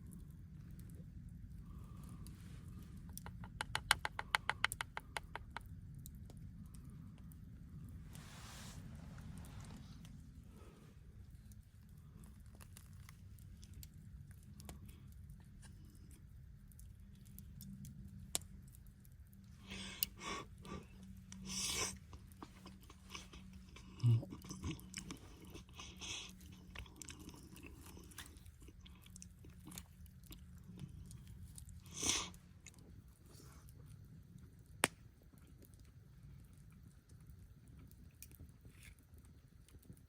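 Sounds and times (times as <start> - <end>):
low steady rumble: 0.0 - 40.0
person chewing crunchy food: 19.6 - 32.8.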